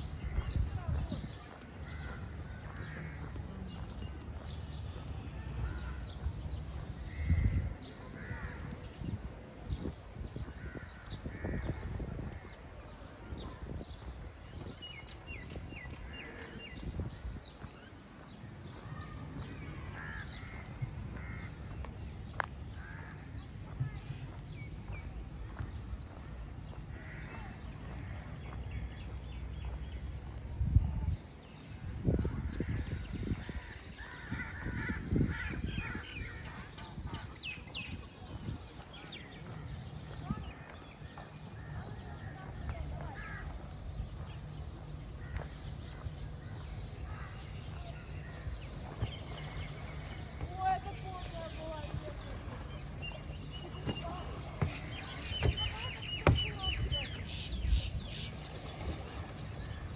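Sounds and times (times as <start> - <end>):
birds chirping: 31.5 - 59.9
low thumps and rumble: 48.8 - 59.9
low thuds: 50.2 - 59.9.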